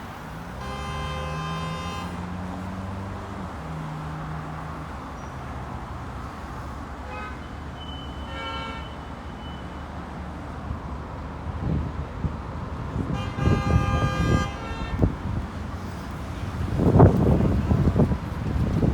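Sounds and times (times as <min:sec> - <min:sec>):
road traffic engines: 0:00.0 - 0:18.9
car horn: 0:00.5 - 0:02.6, 0:07.0 - 0:09.8, 0:12.9 - 0:16.0, 0:16.7 - 0:18.1
short horn-like tones: 0:00.6 - 0:02.3, 0:13.1 - 0:15.3.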